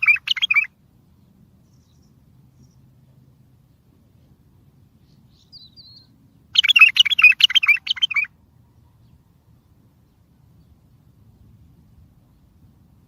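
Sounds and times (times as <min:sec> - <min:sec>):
bulbul singing: 0:00.0 - 0:00.7, 0:05.0 - 0:09.2.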